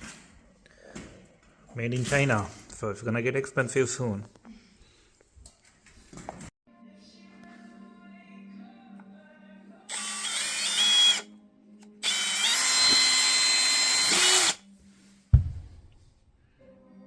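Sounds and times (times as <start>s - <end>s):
power drill whining: 9.9s - 11.2s, 12.0s - 14.6s.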